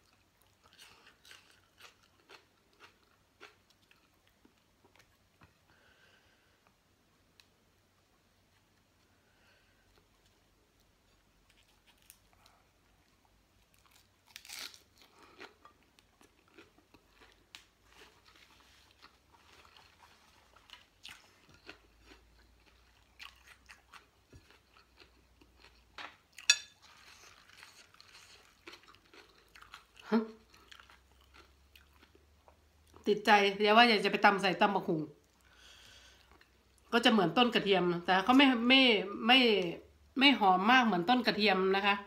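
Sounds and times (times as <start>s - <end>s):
chewing and crunching leaves: 0.0s - 4.3s, 13.6s - 33.0s.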